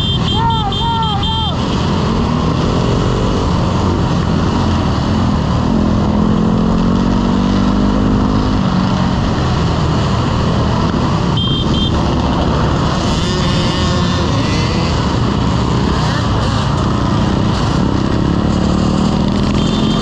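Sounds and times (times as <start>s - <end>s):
short high double beep: 11.3s - 12.0s.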